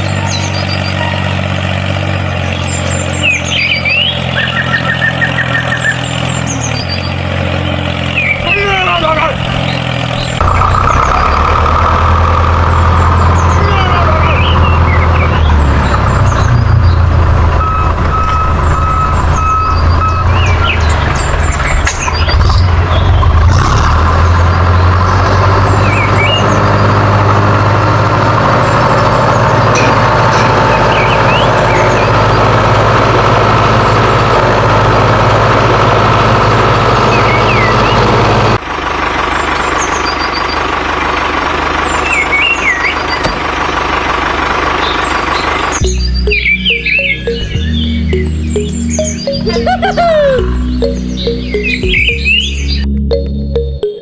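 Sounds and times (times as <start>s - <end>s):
tractor engine running: 0.0s - 54.0s
evenly spaced beeps: 17.6s - 20.6s, 45.8s - 54.0s.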